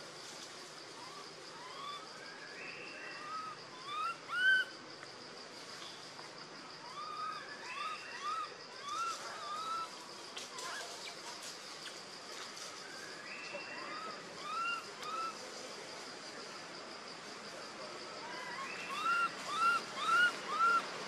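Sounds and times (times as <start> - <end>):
high insect drone: 0.0 - 21.0
birds whistling: 18.4 - 20.8.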